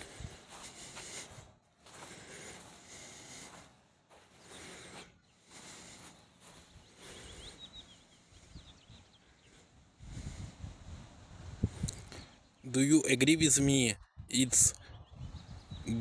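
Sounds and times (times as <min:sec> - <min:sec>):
high bird chirps: 0:06.7 - 0:09.6.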